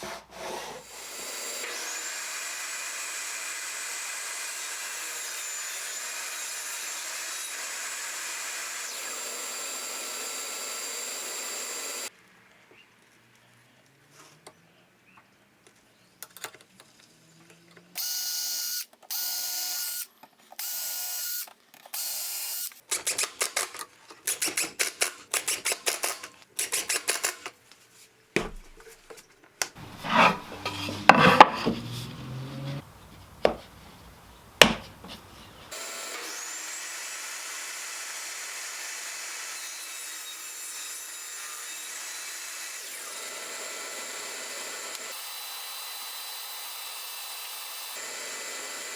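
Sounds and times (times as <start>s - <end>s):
wood and tools knocking: 29.8s - 35.7s
power tool whining: 29.8s - 36.5s.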